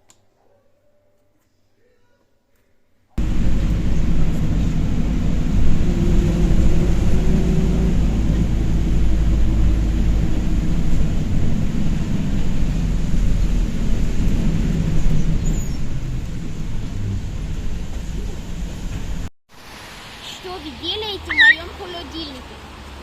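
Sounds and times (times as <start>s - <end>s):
mechanical hum: 3.2s - 19.3s
vehicle rumble in motion: 3.2s - 23.0s.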